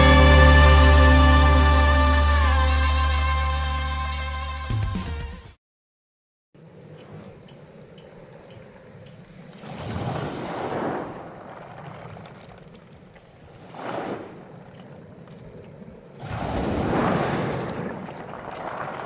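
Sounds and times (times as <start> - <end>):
wind gusting on microphone: 7.1 - 19.0.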